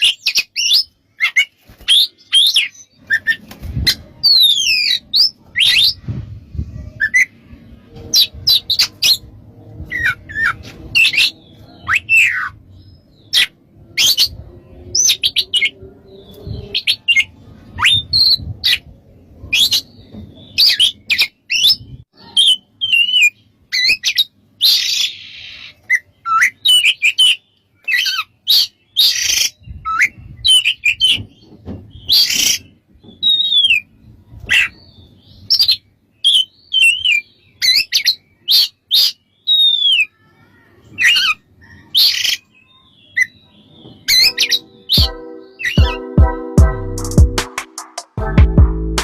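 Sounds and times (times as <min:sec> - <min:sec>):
bird singing chirps and whistles: 0:09.9 - 0:18.8, 0:19.5 - 0:31.2, 0:32.0 - 0:33.9, 0:35.4 - 0:40.2, 0:42.0 - 0:46.2.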